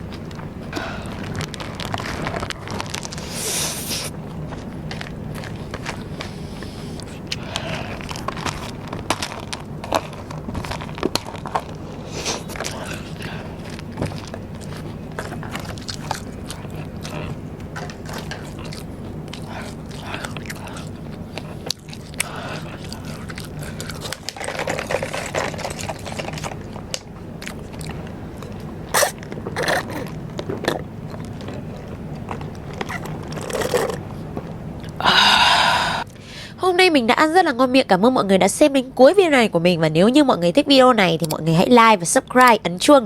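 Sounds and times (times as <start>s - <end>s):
steady low hum: 0.0s - 43.0s
crunchy bites: 0.1s - 34.2s
wet chewing clicks: 1.2s - 35.0s.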